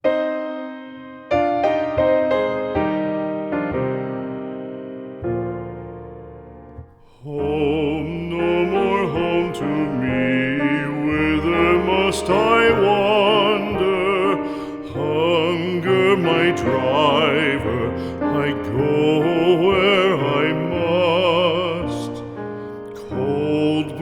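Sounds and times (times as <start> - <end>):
piano: 0.0 - 24.0
person singing with vibrato: 7.0 - 24.0.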